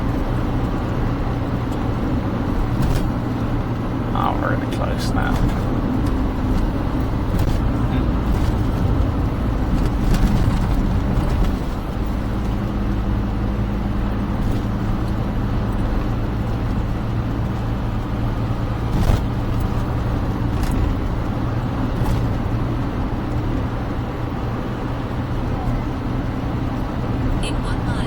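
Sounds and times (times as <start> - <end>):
car engine and road drone: 0.0 - 28.0.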